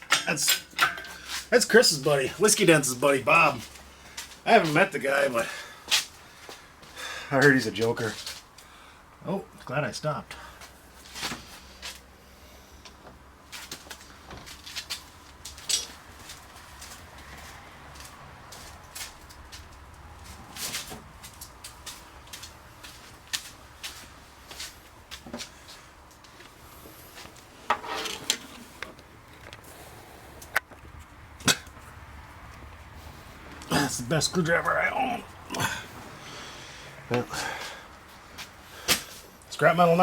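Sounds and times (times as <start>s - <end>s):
metal parts and hand tools knocking: 0.0s - 1.2s, 15.6s - 16.0s
metal tools clinking: 0.0s - 1.4s, 15.5s - 16.0s, 27.7s - 29.6s.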